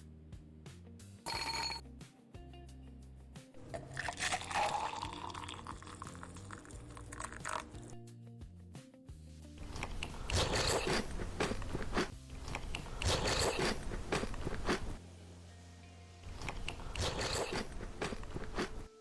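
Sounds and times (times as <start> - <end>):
crunchy food being chewed: 9.6 - 15.0, 16.3 - 19.0.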